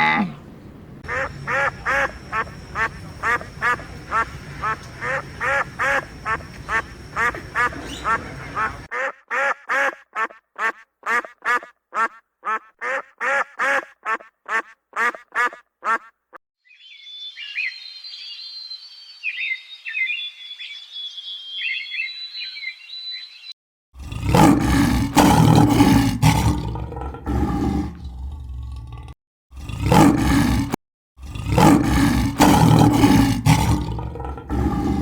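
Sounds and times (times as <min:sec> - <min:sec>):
quack-like animal calls: 0:01.0 - 0:16.2
loud rough roar: 0:24.0 - 0:35.0.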